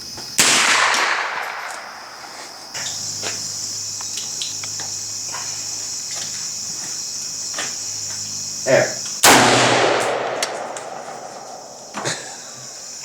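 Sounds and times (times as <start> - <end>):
high-pitched insect chorus: 0.0 - 13.0
rifle shot echo: 0.4 - 2.3, 9.2 - 12.0.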